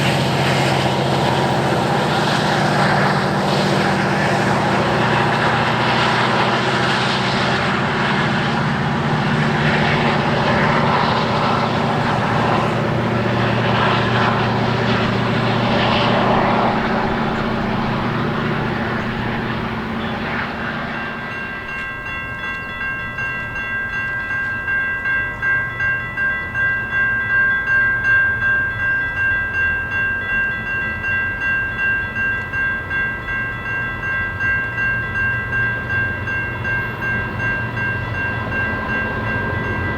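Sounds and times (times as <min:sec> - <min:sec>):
crossing bell ringing: 0:00.0 - 0:39.9
train passing: 0:00.0 - 0:39.9.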